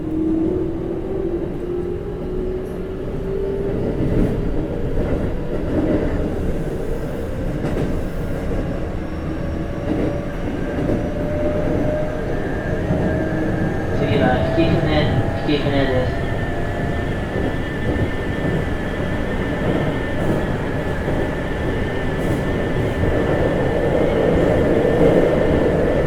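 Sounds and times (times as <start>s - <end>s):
wheels rumbling on rail: 0.0s - 26.0s.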